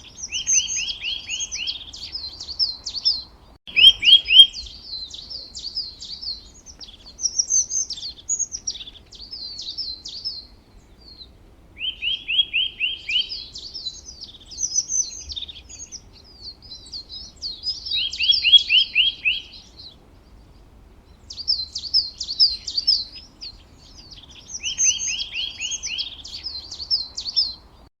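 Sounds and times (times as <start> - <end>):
songbirds chirping: 0.0 - 27.9
bird downward-sweeping notes: 3.7 - 5.3.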